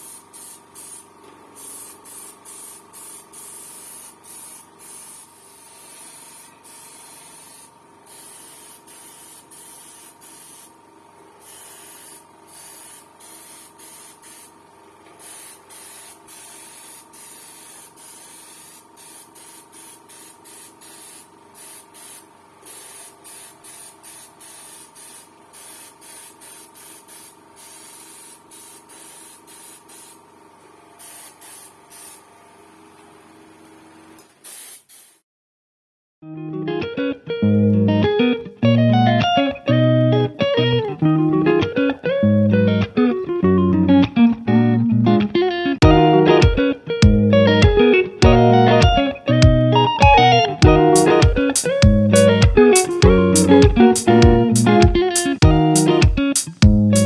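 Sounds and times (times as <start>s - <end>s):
spray paint hissing bursts: 0.0s - 35.2s, 50.9s - 57.0s.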